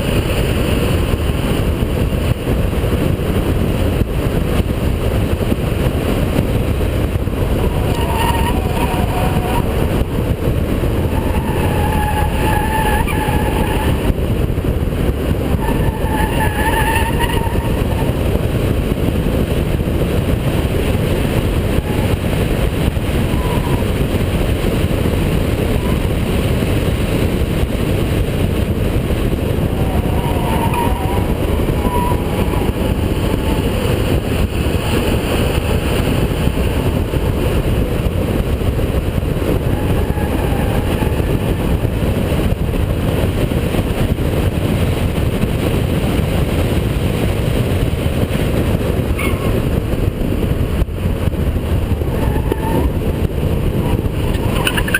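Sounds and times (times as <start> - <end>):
car engine at speed: 0.0 - 54.9
tyres squealing: 7.6 - 9.8, 11.0 - 14.1, 29.6 - 34.1.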